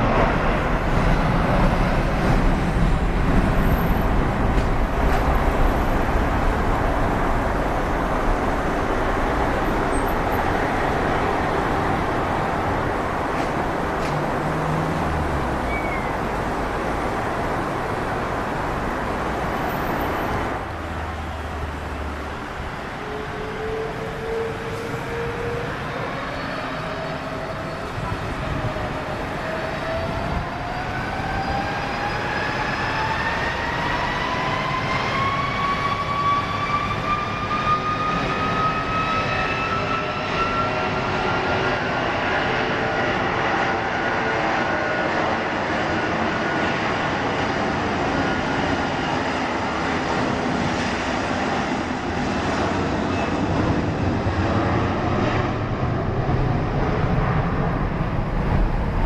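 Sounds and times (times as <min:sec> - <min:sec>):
jet engine rumble: 0:00.0 - 0:59.0
jet engine whine rising: 0:21.6 - 0:59.0.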